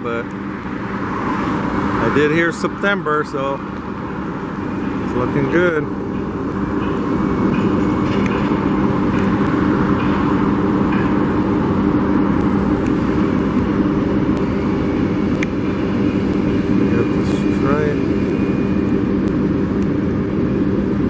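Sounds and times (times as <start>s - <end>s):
cars passing: 0.0s - 21.0s
large vehicle engine running: 0.0s - 21.0s.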